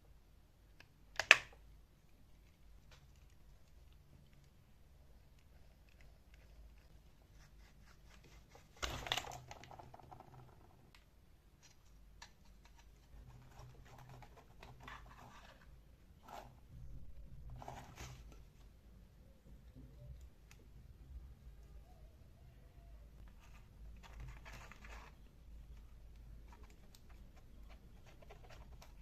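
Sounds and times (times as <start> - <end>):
clicks and scrapes on small parts: 8.1 - 16.5.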